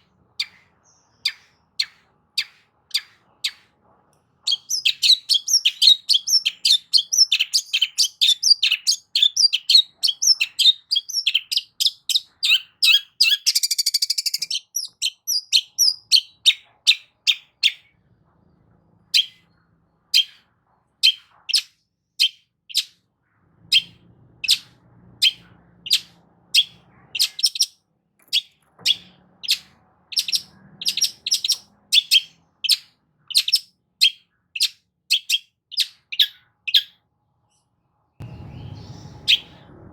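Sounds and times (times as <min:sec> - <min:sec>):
shrike chattering song: 0:38.2 - 0:39.7.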